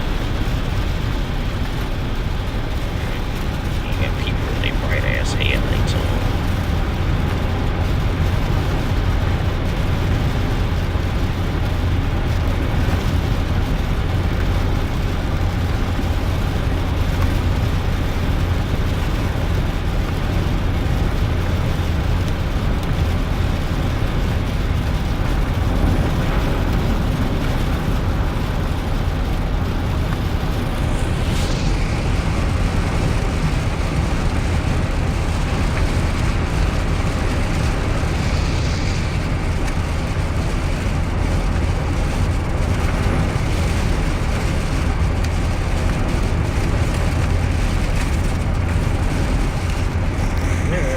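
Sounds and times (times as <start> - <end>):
engine and drivetrain rumble: 0.0 - 50.9
tyre hiss on wet road: 35.8 - 41.7.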